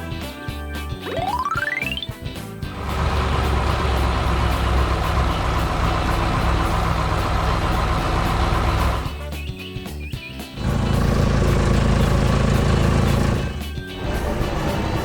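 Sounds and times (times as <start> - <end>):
heavy engine rumbling: 2.7 - 9.2, 10.6 - 15.0.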